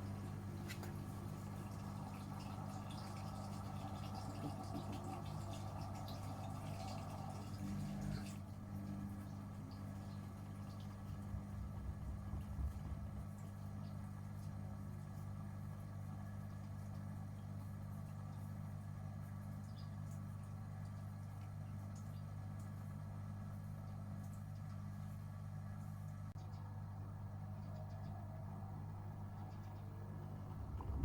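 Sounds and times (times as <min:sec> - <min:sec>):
washing machine humming: 0:00.0 - 0:31.0
low rumbles: 0:11.2 - 0:13.6, 0:28.9 - 0:31.0.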